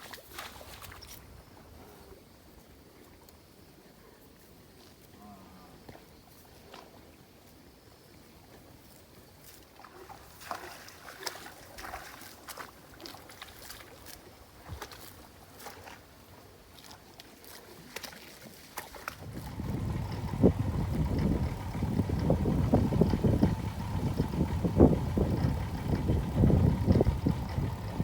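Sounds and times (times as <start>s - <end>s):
water splashing and sloshing: 0.0s - 1.3s, 9.4s - 28.0s.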